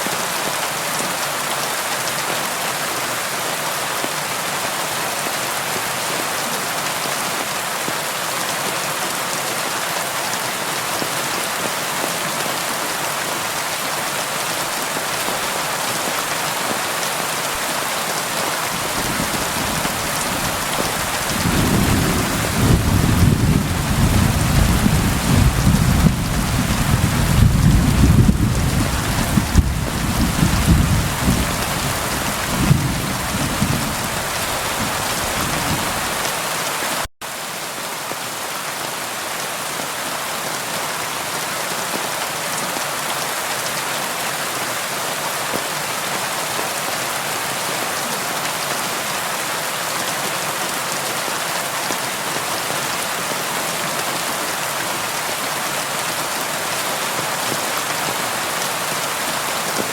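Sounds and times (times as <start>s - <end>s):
steady rain: 0.0s - 59.9s
low rumble of thunder: 18.8s - 36.1s.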